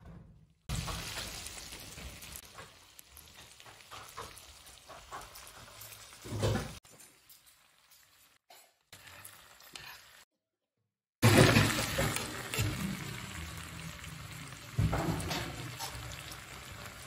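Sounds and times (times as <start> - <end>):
meat sizzling on a griddle: 0.7 - 6.5, 11.2 - 17.0.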